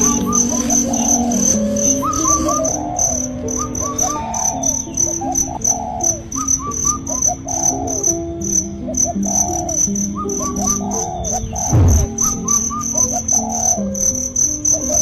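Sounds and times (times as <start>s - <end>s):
crickets chirping: 0.0s - 15.0s
soft slow low melody: 0.0s - 15.0s
whistled bird calls: 0.0s - 15.0s.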